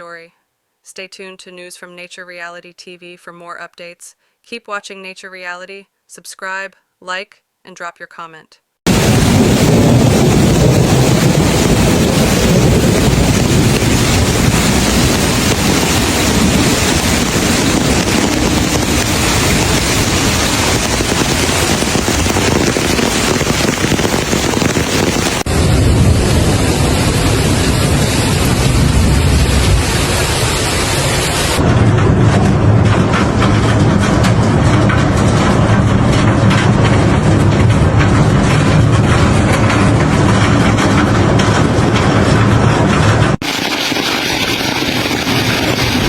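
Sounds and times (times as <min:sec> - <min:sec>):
low rumbling: 0:08.9 - 0:43.4
hail and rain falling: 0:08.9 - 0:46.0.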